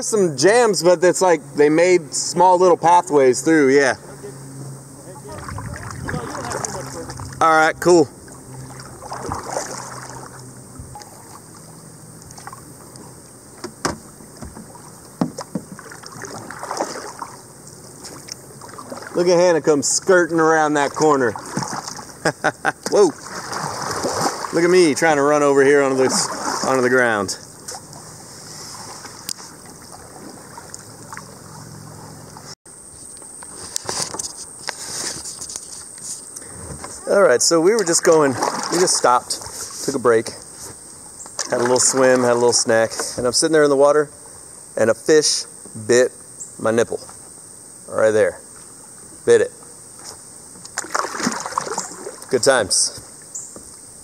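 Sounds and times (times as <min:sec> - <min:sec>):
cicadas droning: 0:00.0 - 0:54.0
kayak paddle splashing in water: 0:05.0 - 0:32.6, 0:37.4 - 0:40.0, 0:41.3 - 0:43.3, 0:50.6 - 0:53.8.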